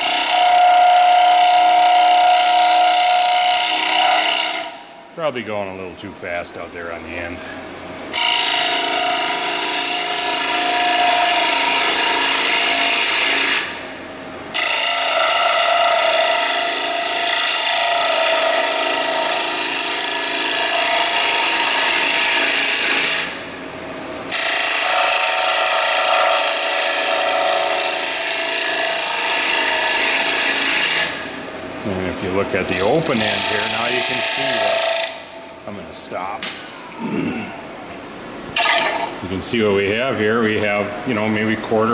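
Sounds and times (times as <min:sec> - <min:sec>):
tool scraping wood on a lathe: 0:00.0 - 0:04.8, 0:08.1 - 0:13.7, 0:14.5 - 0:23.3, 0:24.3 - 0:31.2, 0:32.2 - 0:35.2.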